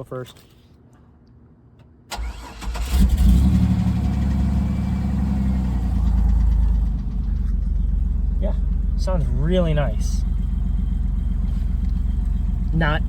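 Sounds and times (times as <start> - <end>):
car engine starting and idling: 2.1 - 13.0
person speaking: 8.4 - 10.3, 12.6 - 13.0.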